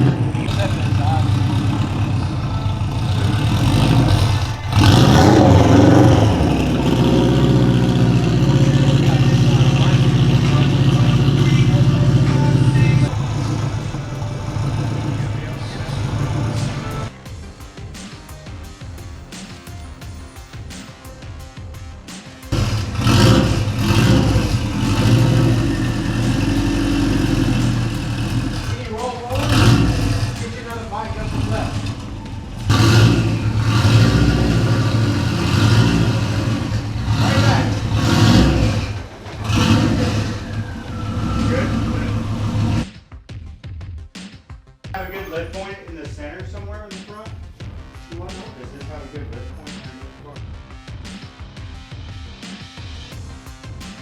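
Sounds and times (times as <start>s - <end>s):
race car engine revving: 0.0s - 19.6s, 22.5s - 42.9s
background music: 0.0s - 54.0s.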